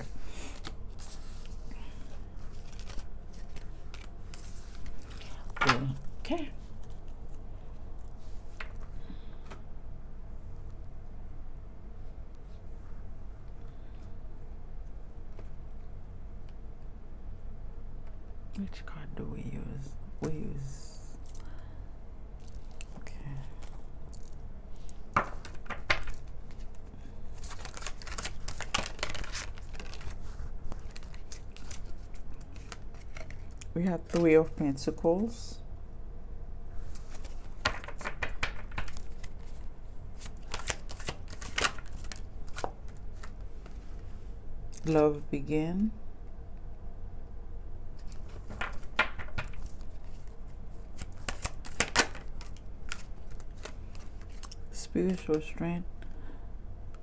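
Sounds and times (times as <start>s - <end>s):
cards shuffling: 0.0s - 7.4s, 22.4s - 34.6s, 36.8s - 44.1s, 48.0s - 55.5s
low steady hum: 0.0s - 57.0s.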